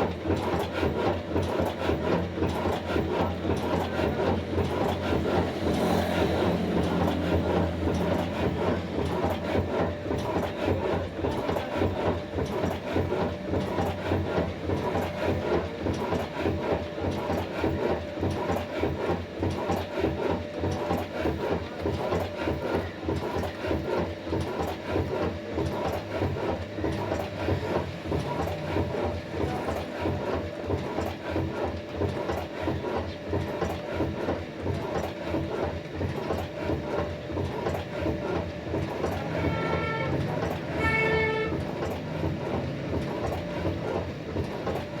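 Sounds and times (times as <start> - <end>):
diesel engine running: 3.4 - 10.5, 38.7 - 43.8.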